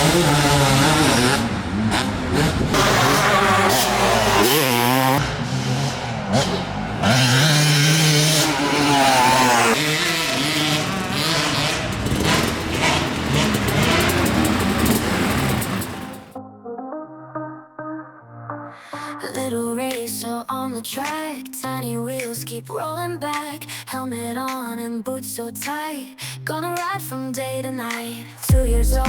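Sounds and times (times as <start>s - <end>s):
motocross bike engine revving: 0.0s - 16.3s.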